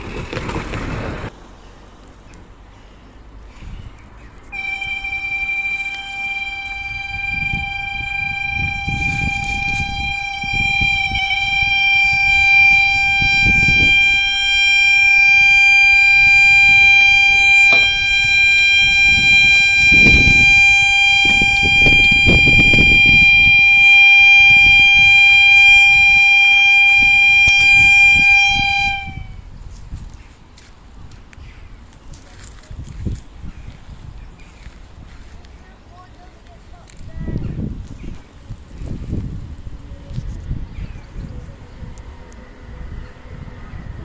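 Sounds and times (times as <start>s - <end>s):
train rumbling past: 0.0s - 44.0s
level crossing alarm steady tone: 4.5s - 29.3s.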